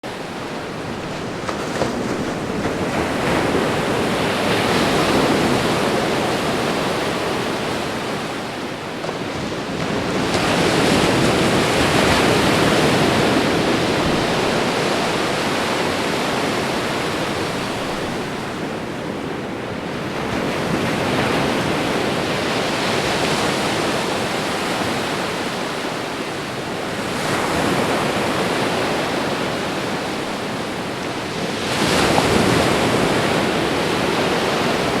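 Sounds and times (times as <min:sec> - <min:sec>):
ocean waves breaking on shore: 0:00.0 - 0:35.0.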